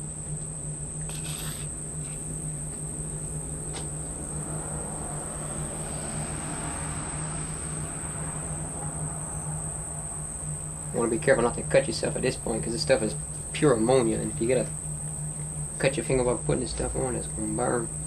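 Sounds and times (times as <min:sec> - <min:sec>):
crickets trilling: 0:00.0 - 0:18.0
low steady hum: 0:00.0 - 0:18.0.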